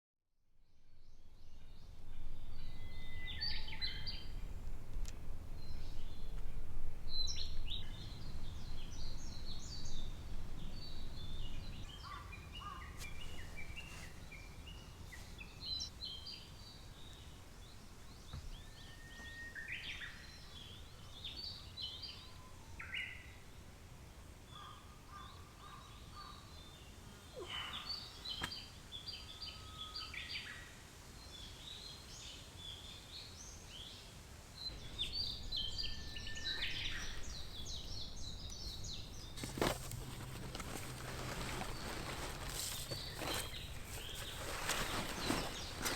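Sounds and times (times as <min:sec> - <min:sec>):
wild birds singing and calling: 0:07.1 - 0:23.6, 0:24.5 - 0:34.0, 0:34.6 - 0:45.9.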